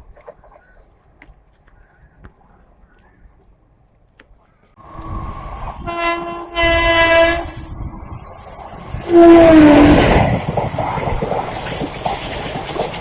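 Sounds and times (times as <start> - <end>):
passing train rumble and clatter: 0.0 - 13.0
locomotive horn blast: 5.8 - 7.8, 9.1 - 10.1.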